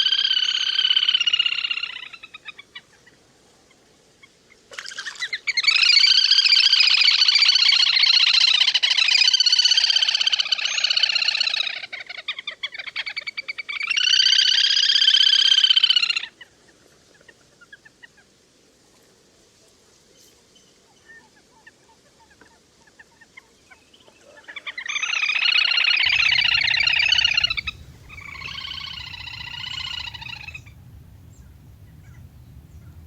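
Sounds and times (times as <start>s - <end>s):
whistling duck calling: 26.1s - 33.0s.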